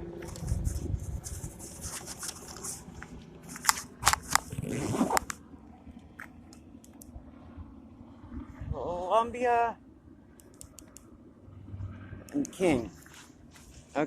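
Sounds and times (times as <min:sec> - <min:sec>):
sharp clicks: 0:06.2 - 0:07.1, 0:10.4 - 0:11.1
close rustling and scuffing: 0:12.8 - 0:14.0.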